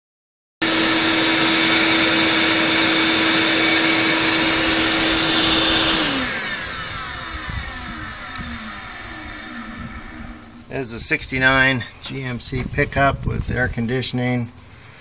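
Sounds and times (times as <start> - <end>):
shop vacuum running: 0.6 - 11.8.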